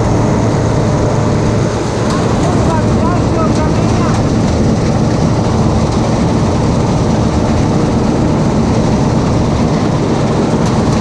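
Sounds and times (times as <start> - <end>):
combine harvester droning: 0.0 - 11.0.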